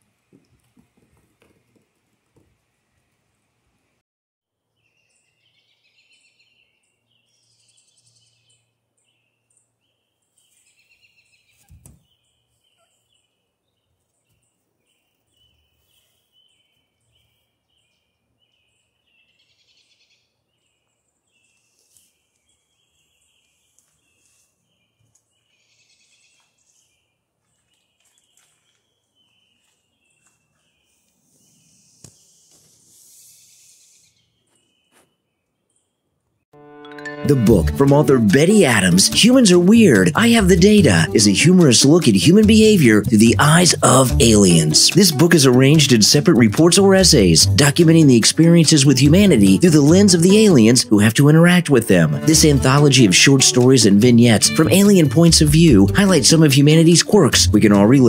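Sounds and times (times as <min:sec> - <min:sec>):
faint birdsong: 0:04.6 - 0:36.5.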